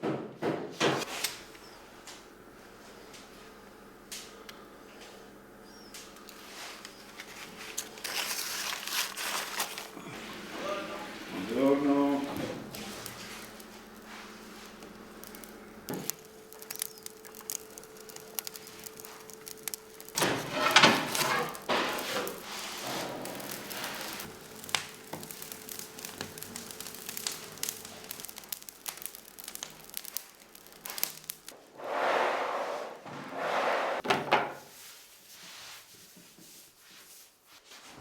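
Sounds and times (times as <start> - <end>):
dough and tools thudding: 34.0 - 34.7.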